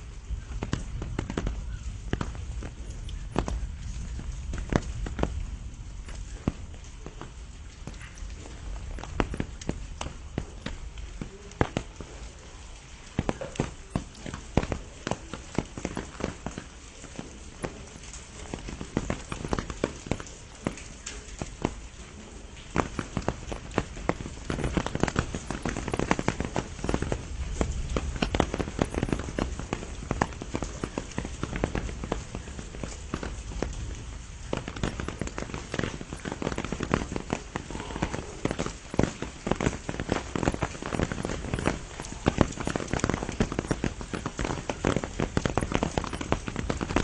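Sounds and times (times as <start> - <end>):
large raindrops tapping: 0.0 - 47.0
rain hissing: 0.0 - 47.0.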